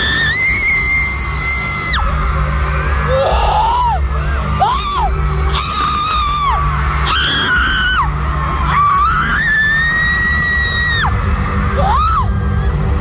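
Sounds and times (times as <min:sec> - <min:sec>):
fan screaming high-pitched shrieks: 0:00.0 - 0:02.0
live concert music with heavy bass: 0:00.0 - 0:13.0.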